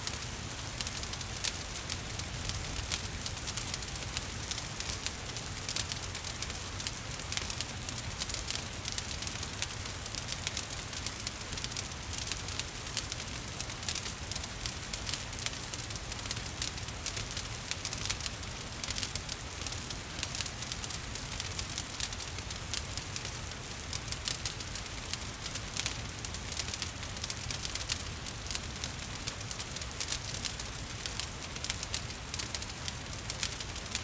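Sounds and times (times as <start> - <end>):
wood fire crackling and popping: 0.0 - 34.0.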